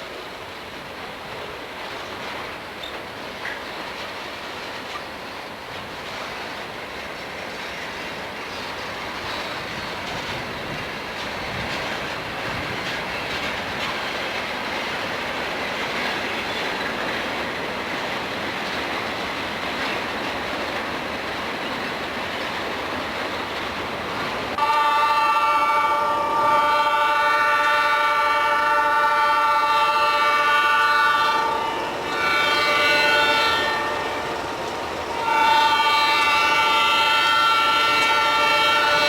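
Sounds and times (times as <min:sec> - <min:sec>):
freight train wheels clattering: 0:00.4 - 0:24.6, 0:28.4 - 0:39.0
locomotive air horn chord: 0:24.6 - 0:34.4, 0:35.1 - 0:39.0.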